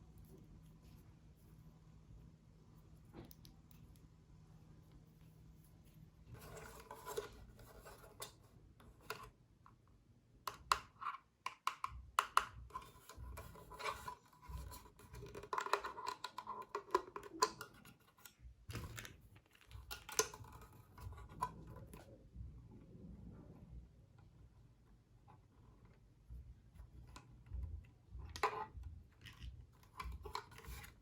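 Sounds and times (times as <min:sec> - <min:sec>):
handling scratching and rubbing: 0:04.9 - 0:09.3, 0:25.3 - 0:31.0.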